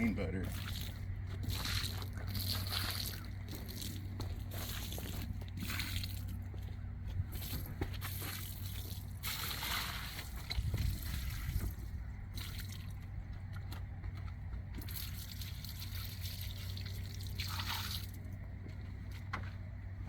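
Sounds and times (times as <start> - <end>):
steady low hum: 0.0 - 20.0
soapy water pouring onto carpet: 0.5 - 6.3, 8.1 - 11.7.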